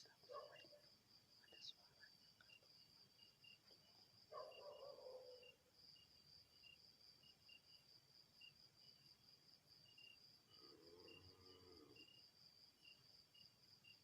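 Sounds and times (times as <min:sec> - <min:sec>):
night insects trilling: 0:00.0 - 0:14.0.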